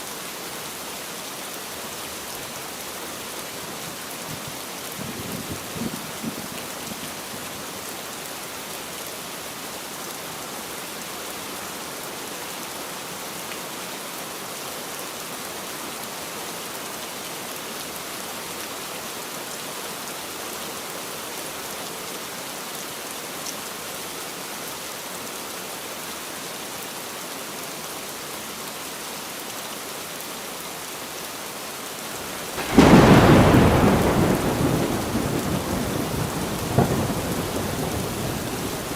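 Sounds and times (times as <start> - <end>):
heavy rainfall: 0.0 - 38.9
loud thunderclap: 32.6 - 38.8.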